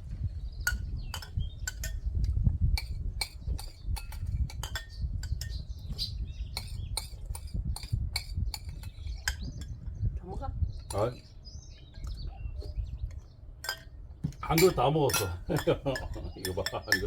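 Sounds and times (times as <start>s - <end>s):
small birds chirping: 0.0s - 17.0s
utensils clinking against a bowl: 0.6s - 2.1s, 2.8s - 5.7s, 6.6s - 9.8s, 13.1s - 17.0s.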